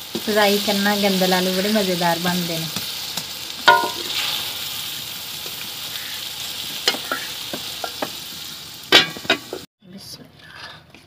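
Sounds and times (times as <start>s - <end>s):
curry sizzling in a pot: 0.0s - 9.7s
metal ladle clinking on pot: 3.7s - 4.1s.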